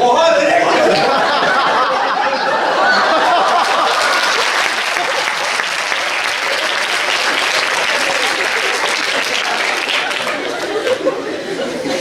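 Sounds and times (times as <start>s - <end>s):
murmur of voices: 0.0s - 3.1s, 6.6s - 12.0s
audience laughter: 0.5s - 12.0s
audience applauding: 2.8s - 11.2s.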